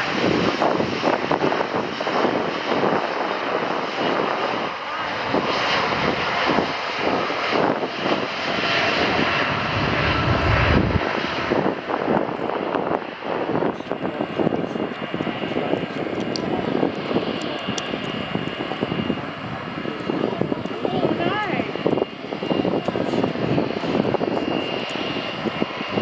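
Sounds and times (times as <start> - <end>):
crackling jet engine roar: 0.0 - 26.0.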